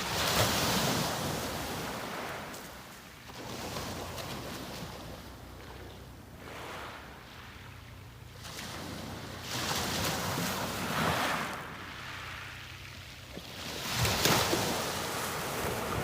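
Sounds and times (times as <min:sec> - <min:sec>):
small waves washing up a beach: 0:00.0 - 0:16.0.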